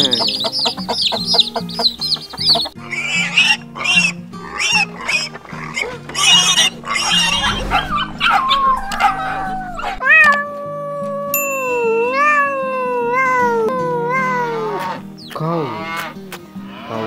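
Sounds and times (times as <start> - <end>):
piglets squealing: 0.0 - 7.6, 13.2 - 17.0
background music: 0.0 - 17.0
cat meowing: 8.3 - 11.4, 12.0 - 15.0.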